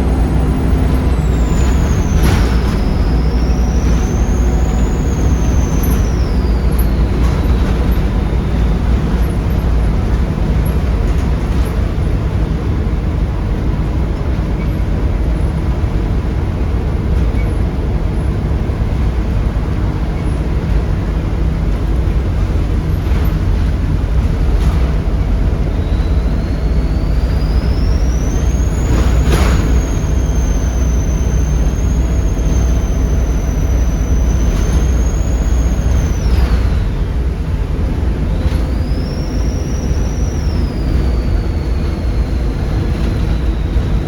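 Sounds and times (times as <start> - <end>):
turbocharger whistle: 0.0 - 12.1, 24.0 - 44.0
bus diesel engine drone: 0.0 - 44.0
road noise: 0.0 - 44.0.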